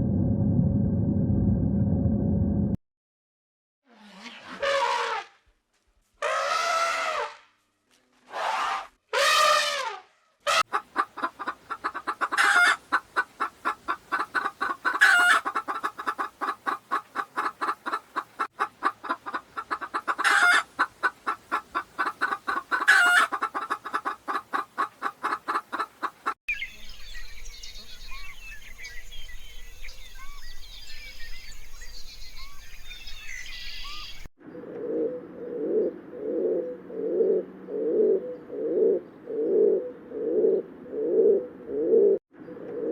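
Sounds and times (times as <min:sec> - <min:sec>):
chicken squawk: 0:08.3 - 0:26.4
chicken clucking: 0:10.5 - 0:26.4
low repeated cooing: 0:34.6 - 0:42.9.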